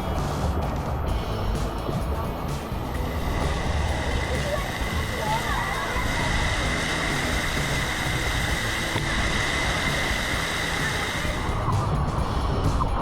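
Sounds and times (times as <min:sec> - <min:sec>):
faint steady whine: 0:00.0 - 0:13.0
water splashing from fountains: 0:00.1 - 0:13.0.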